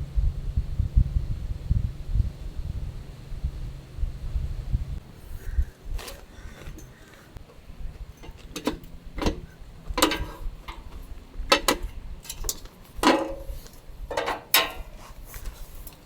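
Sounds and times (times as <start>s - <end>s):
clicks and light knocks: 6.0s - 16.0s.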